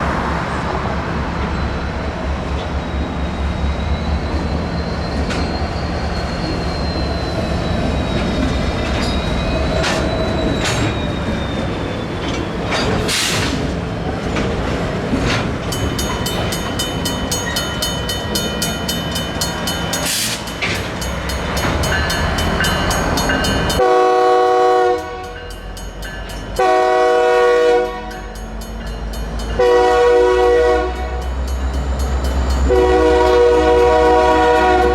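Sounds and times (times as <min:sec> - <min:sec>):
diesel locomotives rumbling: 0:00.0 - 0:34.9
crossing bell clanging: 0:04.9 - 0:34.9
locomotive air horn blasts: 0:23.8 - 0:25.4, 0:26.6 - 0:28.2, 0:29.6 - 0:31.2, 0:32.7 - 0:34.9.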